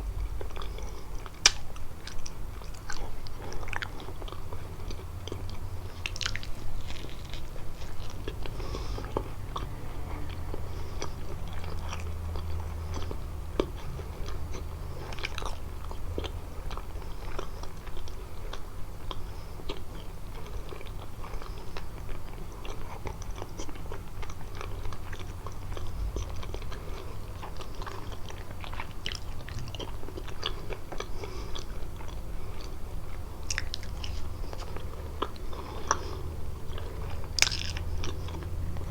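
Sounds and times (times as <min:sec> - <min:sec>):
crisp pastry chewing: 0:00.0 - 0:38.9.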